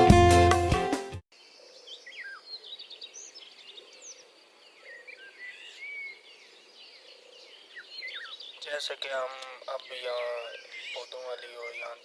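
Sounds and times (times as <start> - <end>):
small birds chirping: 1.3 - 12.0.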